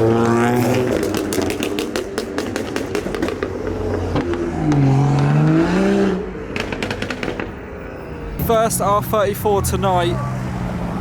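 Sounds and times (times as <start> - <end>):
car engine revving: 0.0 - 11.0
sharp crackling exhaust pops: 0.2 - 5.3, 6.5 - 7.8.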